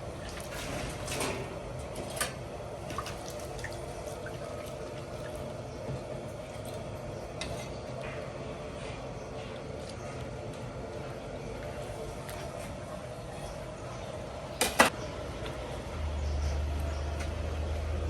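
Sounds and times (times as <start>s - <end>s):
water trickling and dripping: 1.9s - 7.0s.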